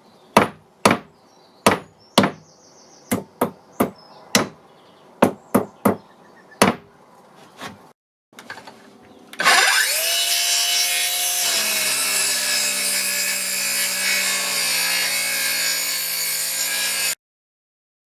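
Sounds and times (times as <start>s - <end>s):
electric saw cutting wood: 9.4s - 17.2s.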